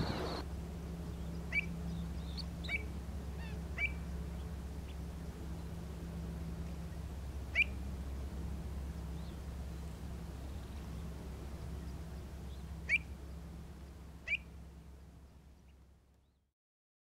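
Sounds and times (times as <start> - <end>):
bird chirping: 0.0 - 0.4, 1.0 - 5.8, 7.5 - 14.5
low hum: 0.0 - 16.5.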